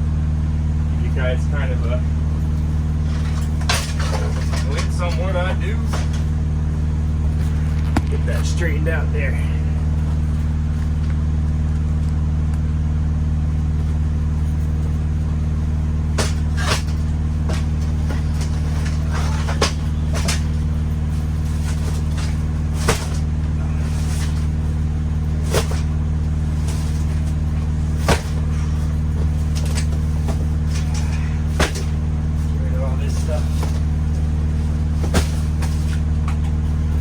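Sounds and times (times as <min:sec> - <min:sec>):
truck engine drone: 0:00.0 - 0:37.0
cases knocking and clunking: 0:02.6 - 0:06.4, 0:13.8 - 0:37.0.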